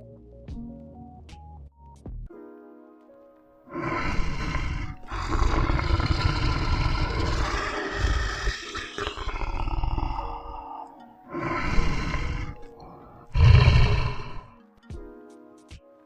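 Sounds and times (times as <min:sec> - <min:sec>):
big cat roaring and growling: 0:03.7 - 0:14.5.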